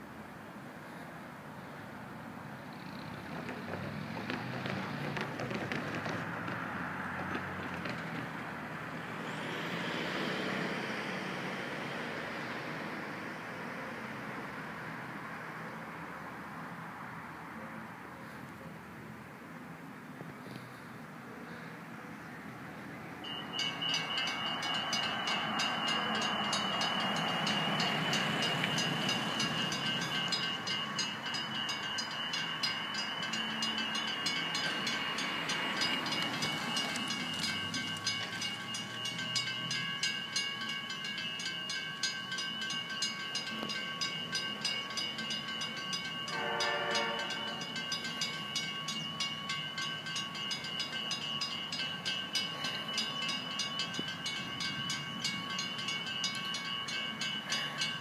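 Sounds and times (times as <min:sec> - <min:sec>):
train passing: 0:00.0 - 0:58.0
crossing warning bell ringing: 0:23.2 - 0:58.0
train horn blast: 0:46.3 - 0:47.7.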